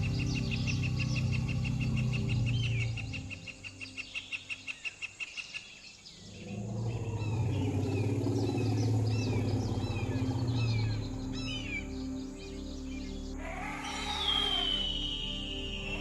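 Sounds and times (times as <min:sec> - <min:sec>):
steady low hum: 0:00.0 - 0:03.7, 0:06.3 - 0:13.9
birds chirping: 0:00.0 - 0:16.0.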